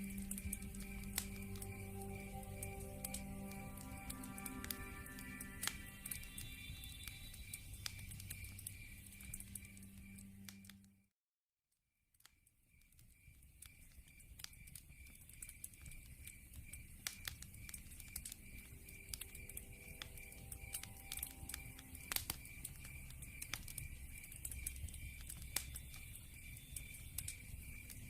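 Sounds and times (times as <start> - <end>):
log fire crackling: 0.0 - 10.7, 12.7 - 28.0
night insects chirring: 0.0 - 10.7, 12.7 - 28.0.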